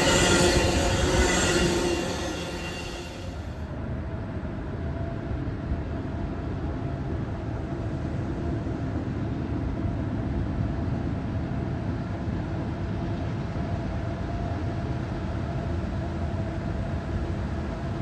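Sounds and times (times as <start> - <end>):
faint constant tone: 0.0 - 3.6
train rumbling past: 0.0 - 3.9.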